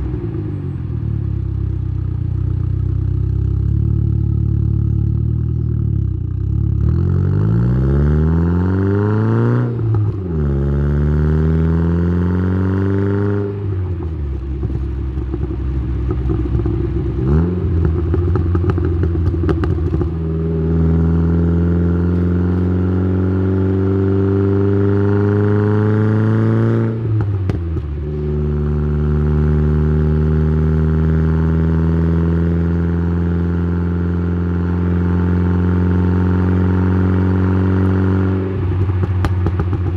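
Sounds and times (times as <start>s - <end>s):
car exhaust revving: 0.0s - 39.9s
exhaust crackling: 13.4s - 22.6s, 36.4s - 39.9s.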